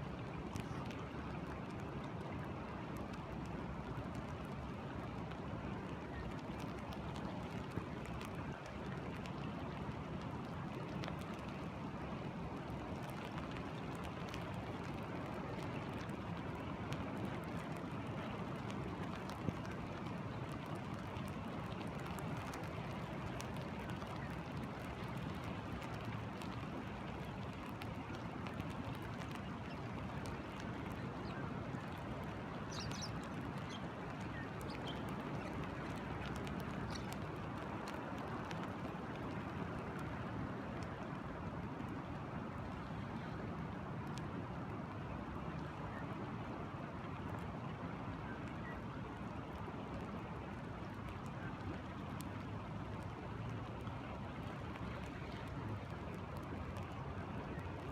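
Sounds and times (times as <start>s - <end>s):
light rain falling: 0.0s - 57.9s
raindrops ticking: 6.0s - 11.8s, 12.5s - 41.2s.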